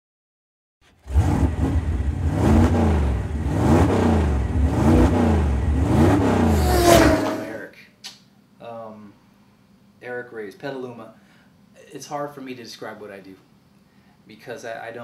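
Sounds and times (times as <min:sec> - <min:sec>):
racing car engine revving: 0:01.0 - 0:07.6.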